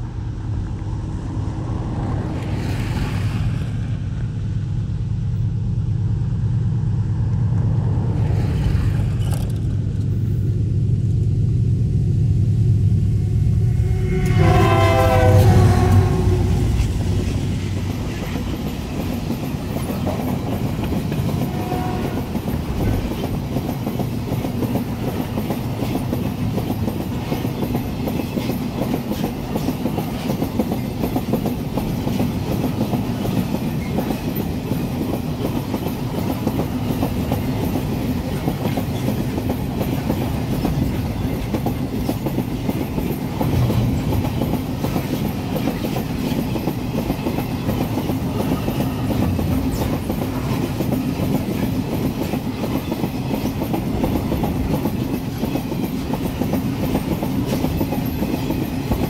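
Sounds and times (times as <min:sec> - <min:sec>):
freight wagons rolling past: 0:13.7 - 0:59.0.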